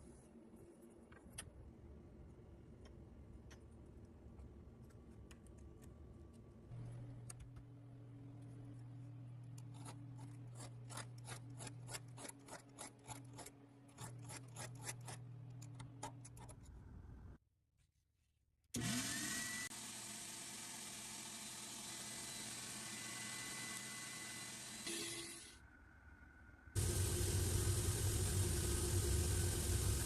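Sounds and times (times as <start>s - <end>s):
hand tool scraping workpiece: 9.6s - 15.3s.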